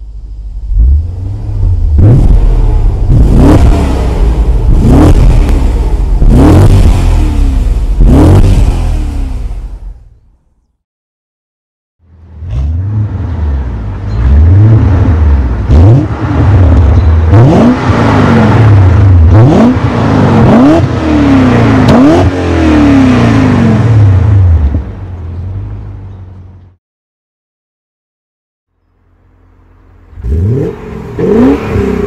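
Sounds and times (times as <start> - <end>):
car engine revving hard: 0.8 - 9.9, 12.4 - 24.6, 30.1 - 32.0.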